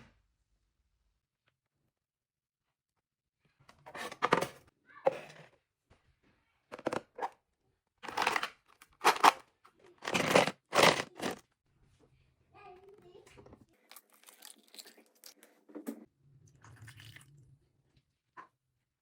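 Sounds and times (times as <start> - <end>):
close crinkling and crunching: 8.0 - 11.4, 13.8 - 15.5.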